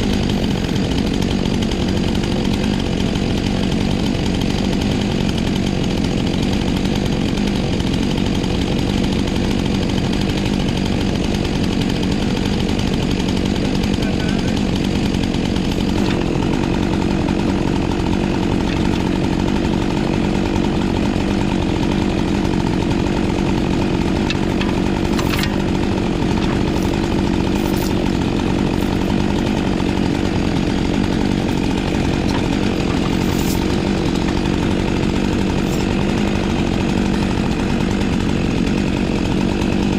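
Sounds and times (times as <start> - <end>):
chainsaw running under throttle: 0.0 - 39.9.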